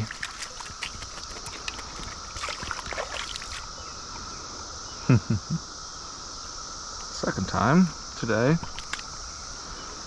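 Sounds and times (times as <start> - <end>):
stream water splashing: 0.0 - 3.8
cicada chorus drone: 0.0 - 10.0.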